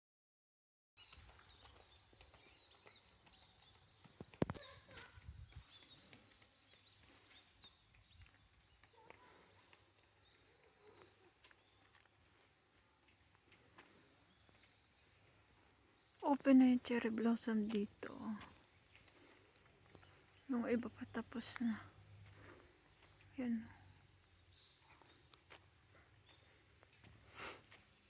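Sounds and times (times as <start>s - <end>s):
faint birds chirping: 1.0s - 28.0s.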